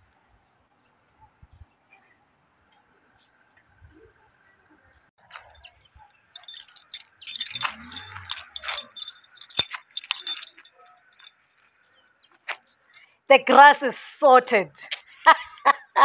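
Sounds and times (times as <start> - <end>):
small metal objects jingling: 5.3 - 11.9.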